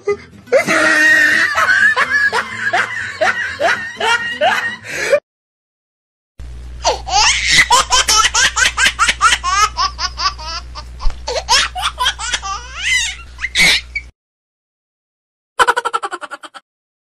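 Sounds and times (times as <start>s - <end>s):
high-pitched giggling: 6.8s - 14.0s, 15.6s - 16.6s.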